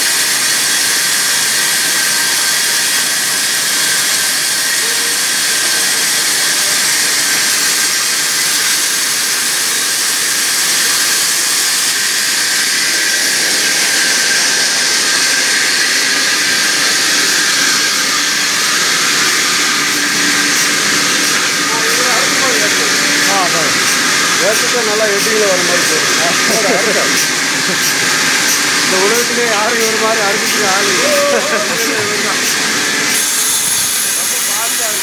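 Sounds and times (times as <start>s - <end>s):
saw cutting through timber: 0.0s - 35.0s.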